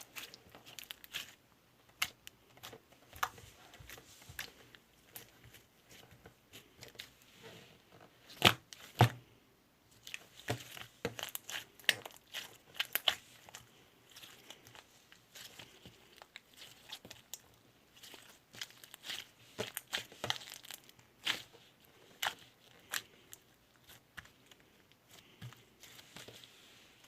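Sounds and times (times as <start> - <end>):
slime crackling and popping: 0.0 - 3.3, 10.0 - 26.3.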